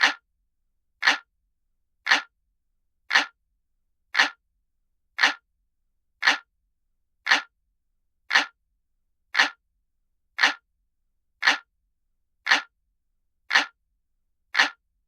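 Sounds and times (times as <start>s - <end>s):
clock ticking: 0.0s - 0.2s, 1.0s - 1.3s, 2.1s - 2.3s, 3.1s - 3.4s, 4.2s - 4.4s, 5.2s - 5.4s, 6.2s - 6.5s, 7.3s - 7.5s, 8.3s - 8.6s, 9.4s - 9.6s, 10.4s - 10.6s, 11.4s - 11.7s, 12.5s - 12.7s, 13.5s - 13.8s, 14.5s - 14.8s.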